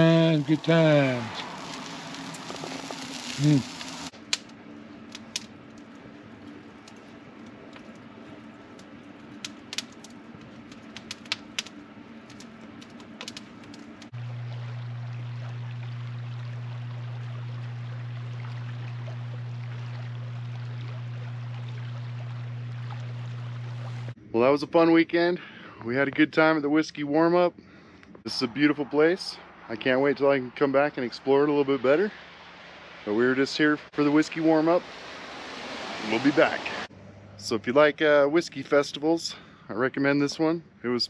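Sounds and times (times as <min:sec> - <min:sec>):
steady low hum: 0:00.0 - 0:24.4.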